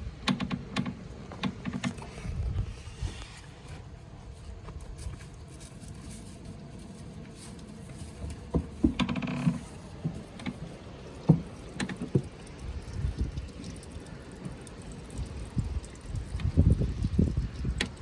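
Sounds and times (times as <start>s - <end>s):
goats moving about: 1.0s - 15.3s.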